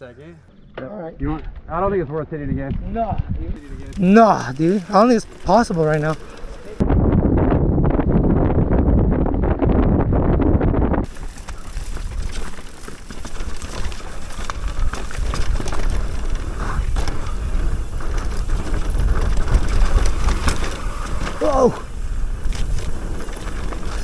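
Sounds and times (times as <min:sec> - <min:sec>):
tyre and trail noise: 0:00.1 - 0:24.0
wind on microphone: 0:01.2 - 0:24.0
bike clicks and rattles: 0:03.6 - 0:06.8, 0:10.9 - 0:24.0.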